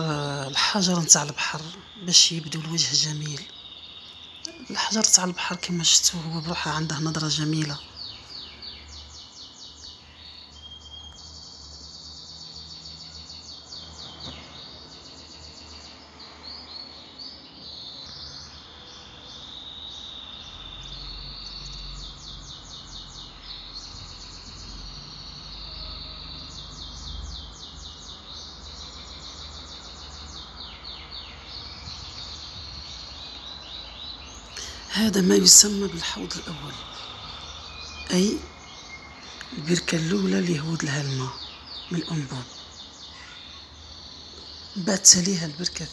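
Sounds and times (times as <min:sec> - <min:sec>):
small birds trilling: 0:00.0 - 0:45.9.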